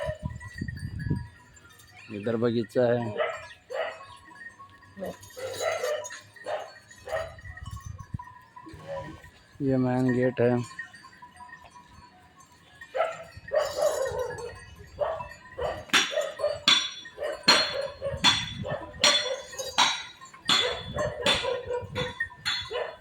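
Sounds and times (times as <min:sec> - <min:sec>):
dog barking: 0:03.1 - 0:04.1, 0:05.4 - 0:07.4, 0:08.7 - 0:09.2, 0:12.9 - 0:19.6, 0:20.5 - 0:23.0.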